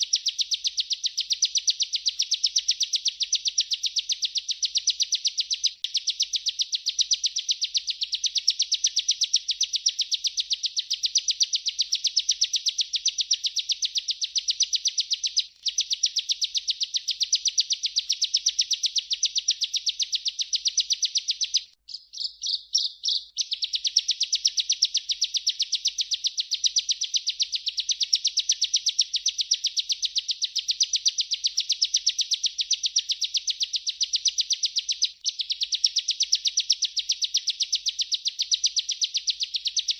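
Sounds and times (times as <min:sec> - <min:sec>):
bird singing high trill: 0:00.0 - 0:39.9.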